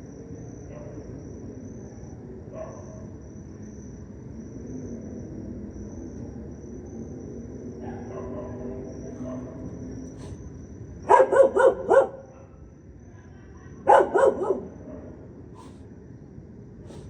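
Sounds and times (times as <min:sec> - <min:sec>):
high cricket trill: 0:00.0 - 0:17.0
dog barking: 0:02.6 - 0:03.0, 0:07.8 - 0:10.4, 0:11.1 - 0:12.6, 0:13.8 - 0:15.8.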